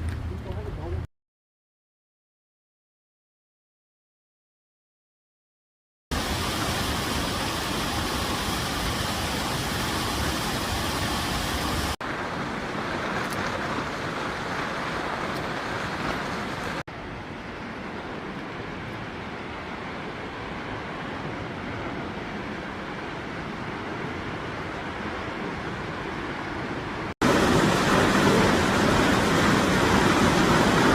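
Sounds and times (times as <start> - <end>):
waterfall roaring: 6.1 - 16.8, 17.6 - 30.9.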